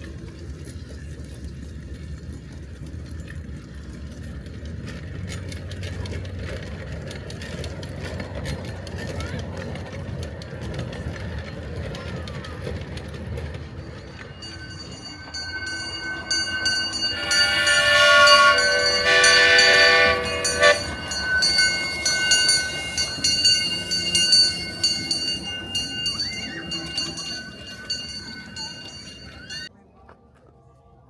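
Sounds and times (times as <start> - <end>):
train running on rails: 0.0 - 29.8
high steady squeal: 13.5 - 29.7
steam whistle blasts: 14.2 - 24.4.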